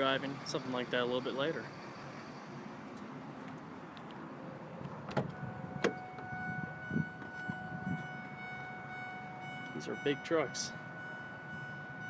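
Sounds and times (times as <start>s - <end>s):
sharp clicks in truck cab: 4.8s - 6.3s
electronic warning tone: 5.4s - 12.0s.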